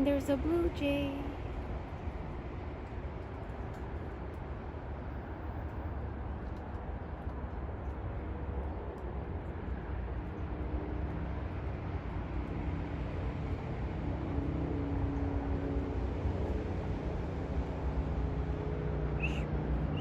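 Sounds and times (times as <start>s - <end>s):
distant vehicle engine drone: 11.1s - 20.0s.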